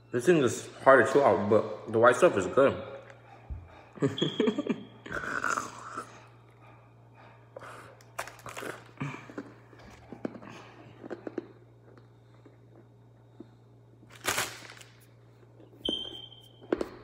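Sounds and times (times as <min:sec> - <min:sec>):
faint steady hum: 0:00.0 - 0:17.0
chewing hard dog treat: 0:07.6 - 0:13.5
mouth clicks and crunches: 0:08.0 - 0:12.9.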